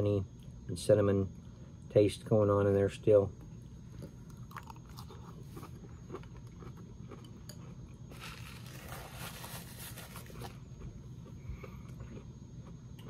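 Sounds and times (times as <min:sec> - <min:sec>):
chewing crunchy cereal: 0:03.8 - 0:13.0
rustle: 0:08.1 - 0:10.6.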